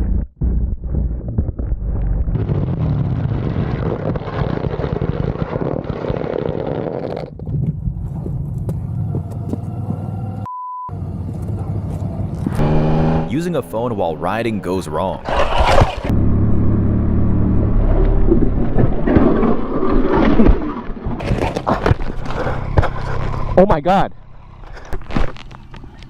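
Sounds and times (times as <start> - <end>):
wind and road noise: 0.9 - 26.0
motor vehicle engine running: 7.7 - 19.8, 21.1 - 26.0.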